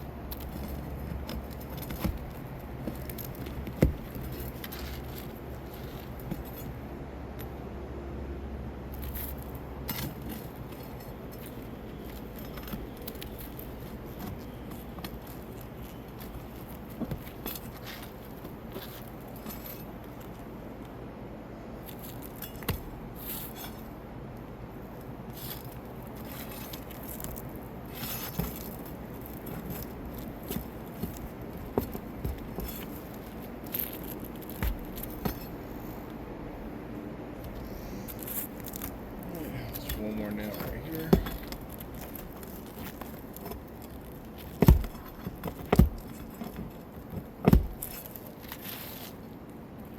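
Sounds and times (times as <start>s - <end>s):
metal tool scraping roofing nails: 25.4s - 35.7s, 37.5s - 49.1s.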